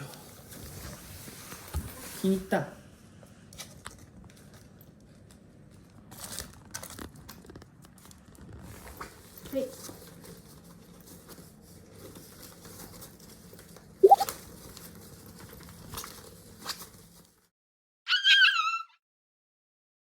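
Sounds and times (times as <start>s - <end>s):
wavering high tone: 14.0s - 14.3s
puppy squeak: 18.1s - 19.0s.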